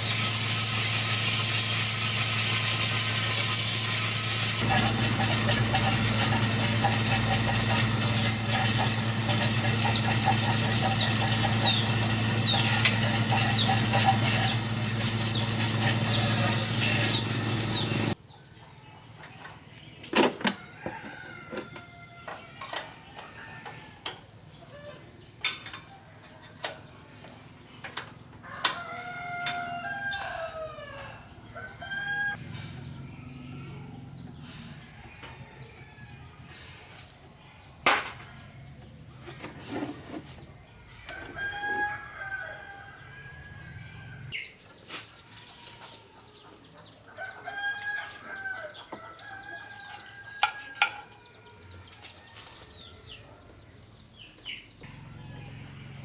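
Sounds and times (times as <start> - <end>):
roosters crowing: 2.4 - 18.2, 20.6 - 24.0, 28.3 - 36.7, 40.8 - 44.4, 45.2 - 53.2, 54.8 - 56.0.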